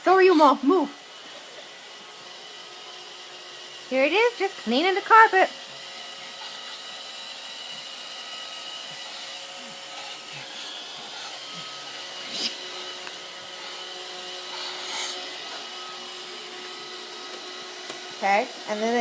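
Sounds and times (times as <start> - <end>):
robot vacuum whirring: 0.0 - 19.0
thin whine: 6.1 - 19.0.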